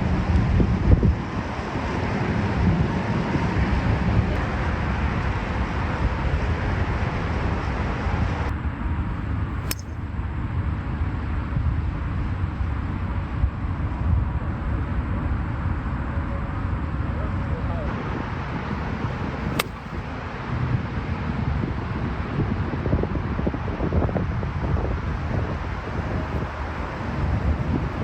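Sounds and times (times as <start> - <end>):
sharp click: 9.7 - 9.9, 19.5 - 19.8
wind buffeting microphone: 17.8 - 28.0.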